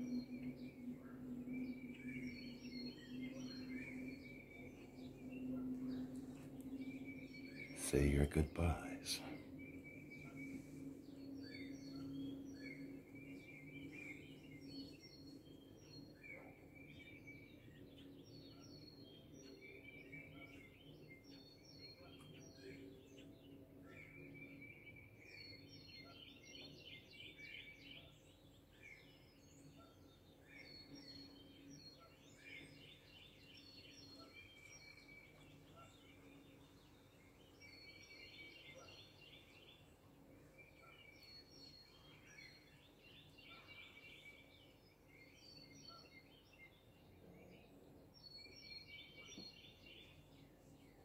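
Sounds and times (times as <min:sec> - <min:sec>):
steady low hum: 0:00.0 - 0:25.4
birds chirping: 0:00.0 - 0:51.0.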